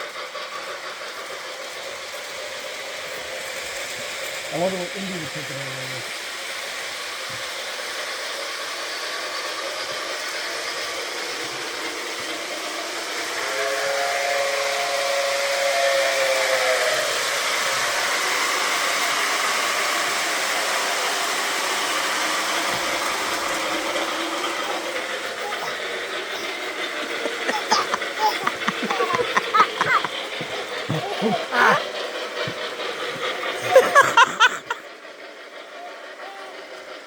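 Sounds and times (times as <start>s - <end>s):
steam locomotive hissing: 0.0s - 37.0s.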